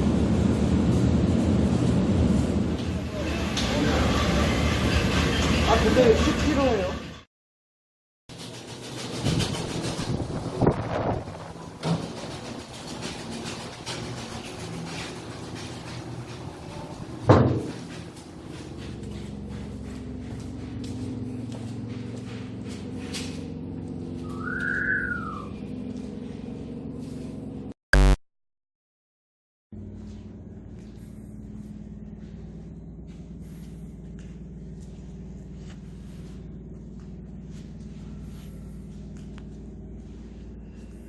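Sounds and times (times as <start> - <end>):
low machine hum: 11.3 - 28.1, 29.8 - 41.0
whistle-like tone: 24.2 - 25.6
loud blip: 28.0 - 28.2.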